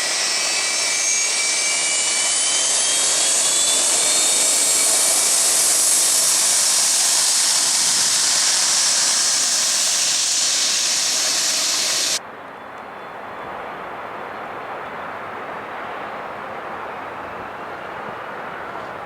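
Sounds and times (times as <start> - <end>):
jet engines roaring: 0.0 - 12.2.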